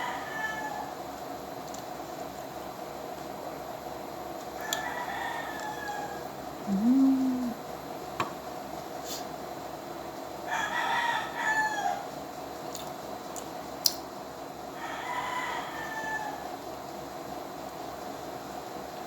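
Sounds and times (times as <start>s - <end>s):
rooster crowing: 0.0s - 0.9s, 4.6s - 6.2s, 10.5s - 12.0s, 14.8s - 16.4s.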